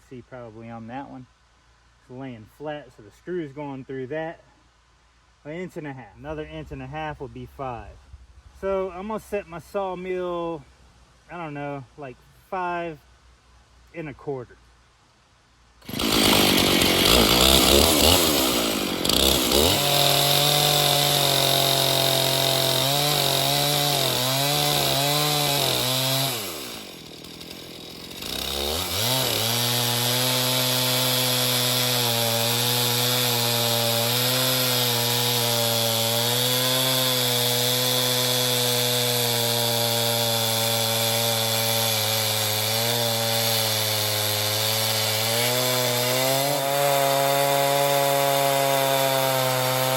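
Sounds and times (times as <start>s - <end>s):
chainsaw revving and cutting log: 15.8s - 49.9s.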